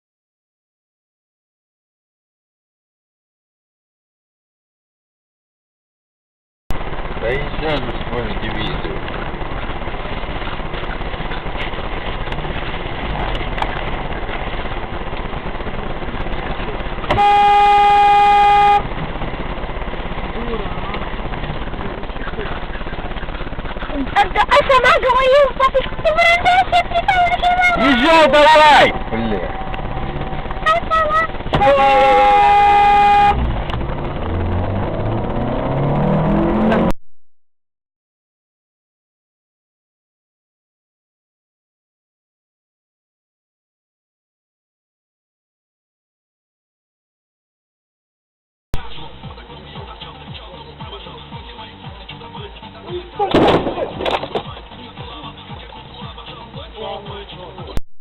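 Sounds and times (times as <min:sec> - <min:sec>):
car driving noise: 0:06.7 - 0:37.0, 0:48.8 - 0:57.8
car horn: 0:17.0 - 0:19.0, 0:26.4 - 0:33.6.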